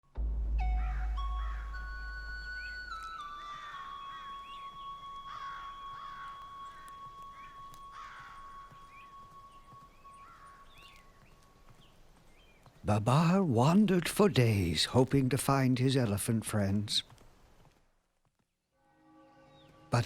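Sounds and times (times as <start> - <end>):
birds cawing: 0.6 - 13.4.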